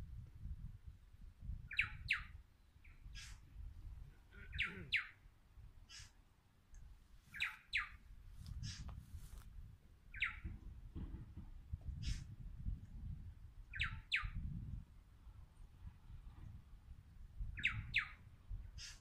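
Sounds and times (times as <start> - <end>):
short sharp bird calls: 3.0 - 3.4, 4.3 - 5.2, 5.9 - 6.2, 18.8 - 19.0.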